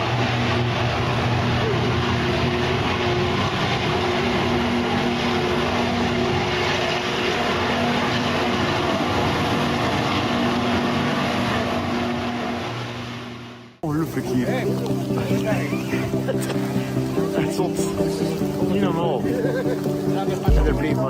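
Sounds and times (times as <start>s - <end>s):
motor humming: 14.7s - 21.0s
loud even rushing noise: 20.5s - 21.0s.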